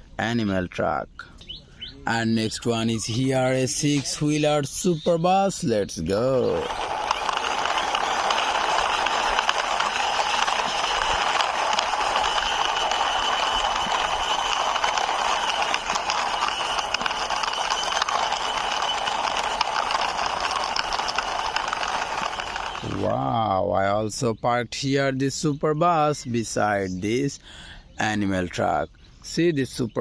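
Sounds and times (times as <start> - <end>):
toy bus wheels rolling and rattling: 2.4 - 4.8, 5.5 - 23.4.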